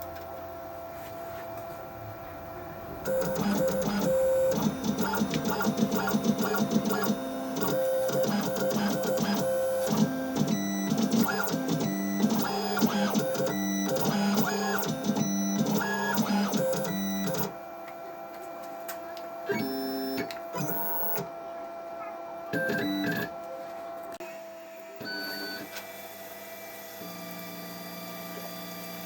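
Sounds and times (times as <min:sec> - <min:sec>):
stepper motors whining: 0:03.1 - 0:17.5.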